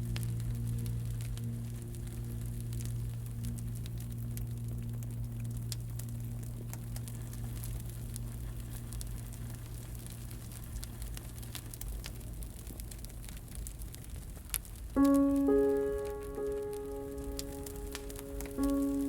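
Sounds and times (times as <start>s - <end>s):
steady low hum: 0.0s - 12.9s
campfire crackling and popping: 0.0s - 19.0s.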